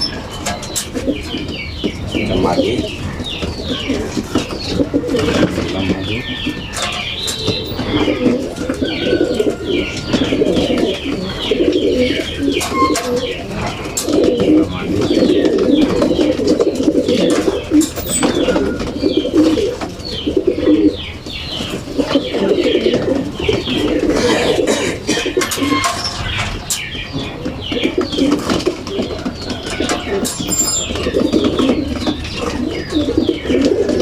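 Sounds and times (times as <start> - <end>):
pigeons cooing: 0.0 - 34.0
short high chirping calls: 17.7 - 18.7, 30.2 - 31.0.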